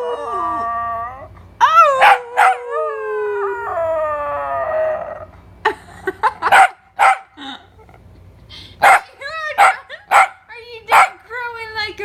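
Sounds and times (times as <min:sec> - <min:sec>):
dog howling: 0:00.0 - 0:05.3
dog barking: 0:02.0 - 0:02.6, 0:06.5 - 0:07.3, 0:08.8 - 0:11.2.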